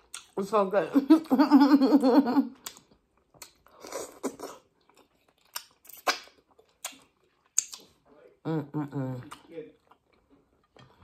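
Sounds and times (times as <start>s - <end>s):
chewing food: 0.0s - 0.5s, 2.5s - 8.4s, 9.1s - 11.0s.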